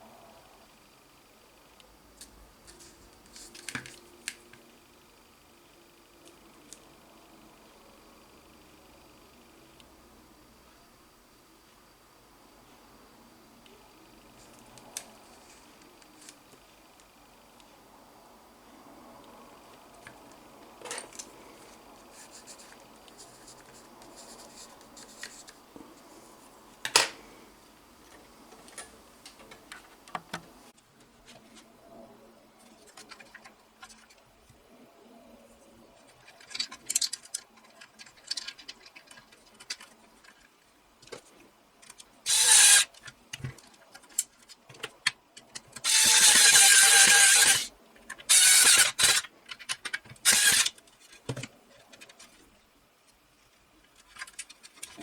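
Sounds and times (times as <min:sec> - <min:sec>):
whirring power tool: 0:42.3 - 0:42.9, 0:45.8 - 0:47.7, 0:48.3 - 0:49.3, 0:50.2 - 0:50.7.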